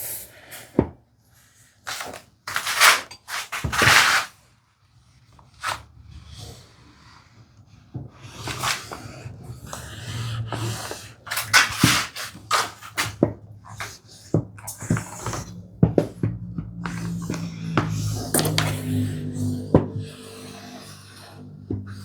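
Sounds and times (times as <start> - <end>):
iron swishing over fabric: 1.9 - 4.3
iron knocking on wood: 14.4 - 20.2.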